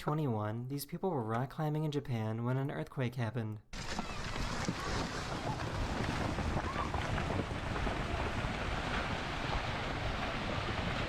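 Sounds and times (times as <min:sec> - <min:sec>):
wind buffeting microphone: 0:03.8 - 0:11.0.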